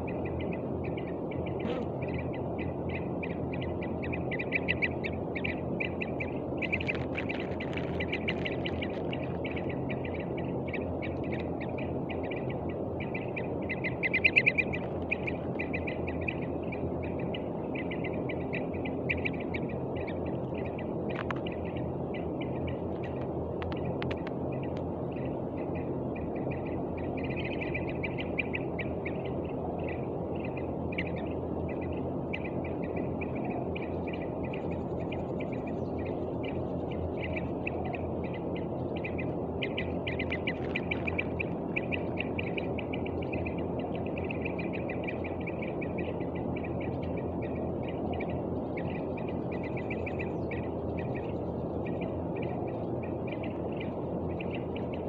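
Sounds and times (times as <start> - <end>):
low background noise: 0.0 - 55.0
young bird chattering calls: 1.5 - 3.1.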